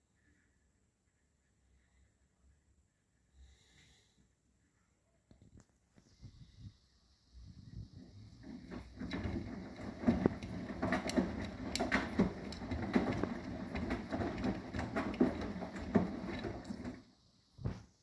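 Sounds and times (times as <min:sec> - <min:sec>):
washing machine drum turning: 0:08.0 - 0:17.1
knocks and swishing of wet load: 0:08.0 - 0:17.8.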